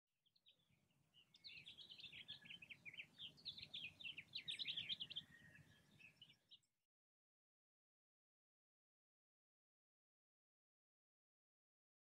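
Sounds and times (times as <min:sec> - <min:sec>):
songbirds chirping: 0:00.2 - 0:06.8.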